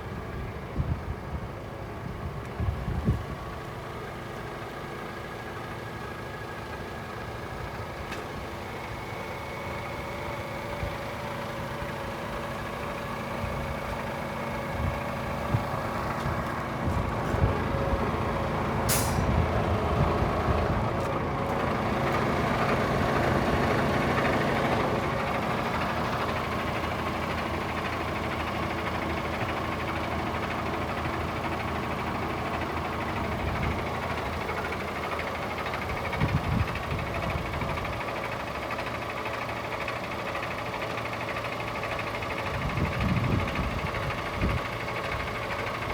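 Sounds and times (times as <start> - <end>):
diesel engine running: 0.0 - 45.9
air brake hiss: 18.9 - 19.4.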